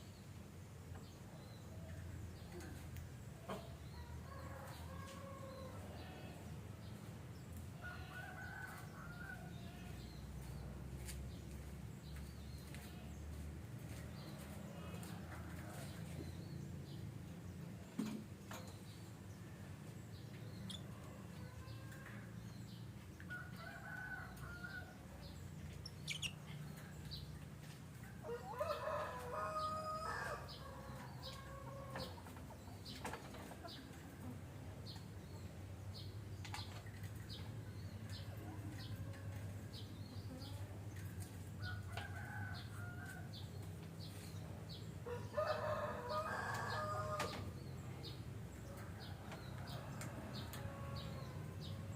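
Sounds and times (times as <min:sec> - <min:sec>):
lovebirds chirping: 0:25.2 - 0:27.4.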